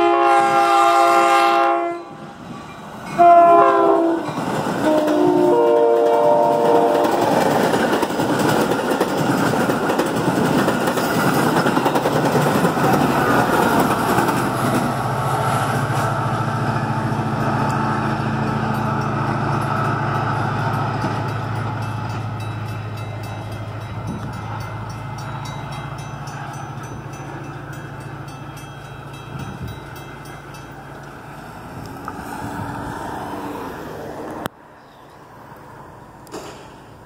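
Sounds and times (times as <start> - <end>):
train rail rumble: 0.0 - 34.5, 35.1 - 37.0
diesel locomotive engine drone: 0.0 - 37.0
sharp click: 36.2 - 36.8.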